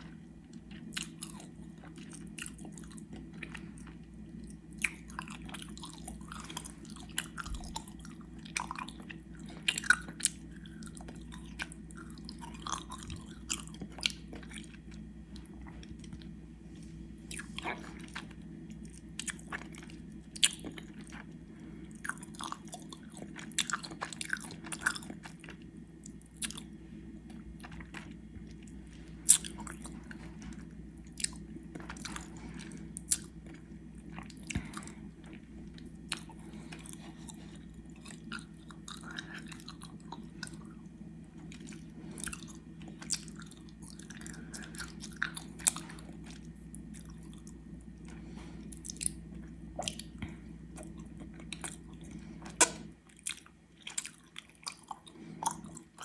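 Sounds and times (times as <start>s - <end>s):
wet sticky chewing: 41.4s - 56.0s.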